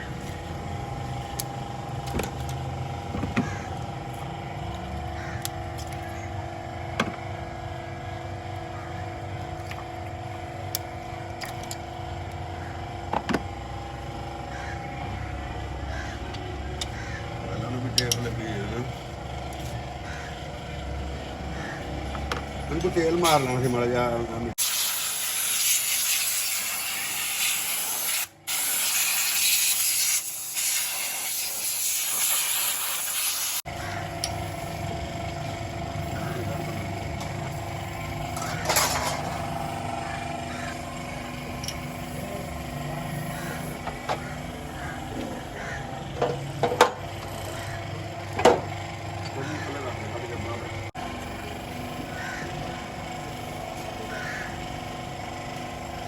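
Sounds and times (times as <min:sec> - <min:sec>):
workshop hum: 0:00.0 - 0:56.0
compressed air spray hissing: 0:24.6 - 0:33.6
car engine idling: 0:33.7 - 0:56.0
sharp engine knocks: 0:46.1 - 0:47.4, 0:48.3 - 0:48.8.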